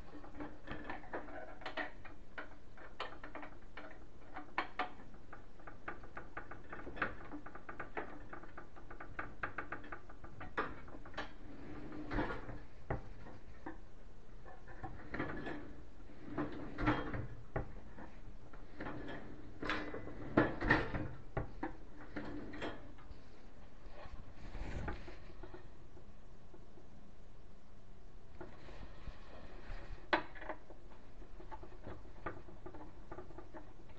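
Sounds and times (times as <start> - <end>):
knocks and clatters on cabinet: 0.0 - 13.8, 14.4 - 23.1.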